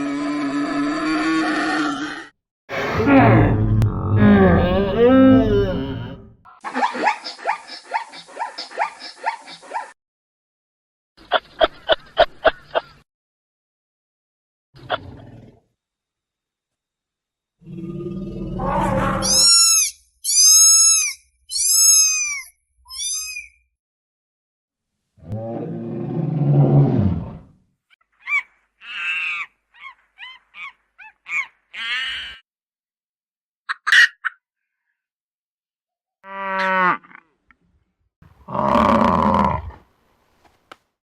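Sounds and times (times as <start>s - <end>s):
animal low growl: 0.0s - 6.3s, 17.6s - 19.3s, 25.2s - 27.6s, 38.4s - 39.8s
high arching animal calls: 17.8s - 23.6s, 28.1s - 32.4s.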